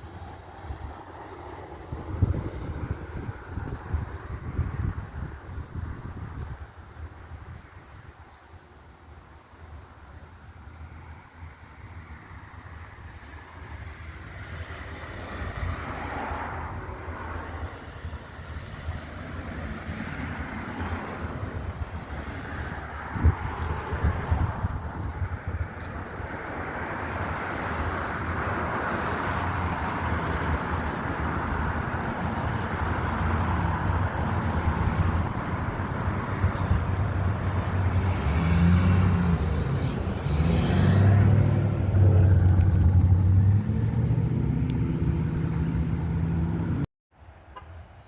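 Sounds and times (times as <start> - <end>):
road noise: 0.0 - 48.0
car engine accelerating: 27.0 - 46.9.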